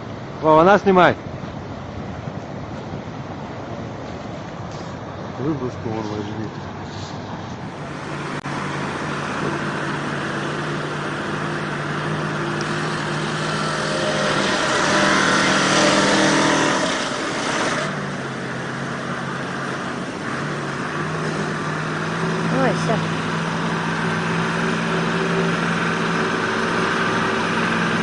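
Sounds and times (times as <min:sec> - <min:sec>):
vehicle engine revving: 0:07.0 - 0:28.0.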